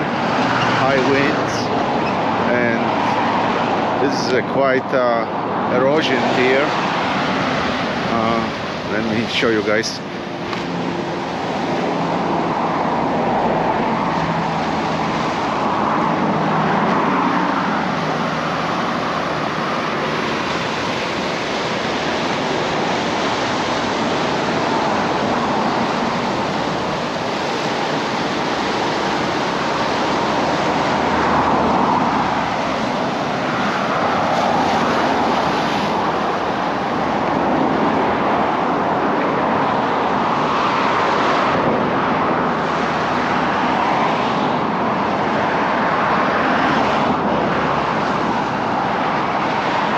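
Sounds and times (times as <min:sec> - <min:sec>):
ocean surf rushing: 0:00.0 - 0:49.9.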